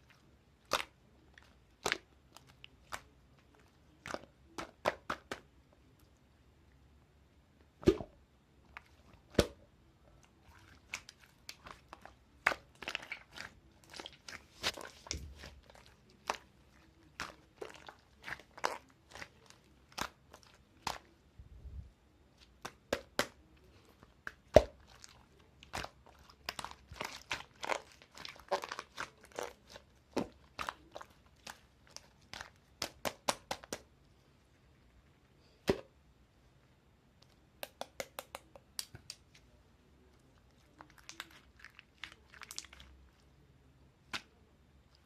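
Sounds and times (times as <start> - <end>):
slime squeezed crackling and popping: 10.8 - 16.5, 24.3 - 33.8.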